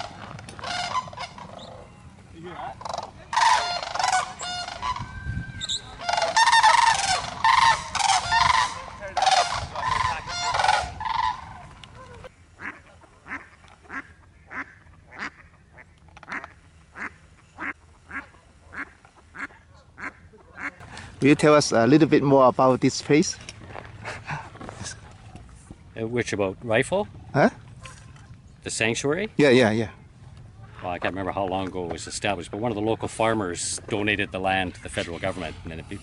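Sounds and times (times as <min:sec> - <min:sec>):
cranes calling: 0:00.0 - 0:21.1.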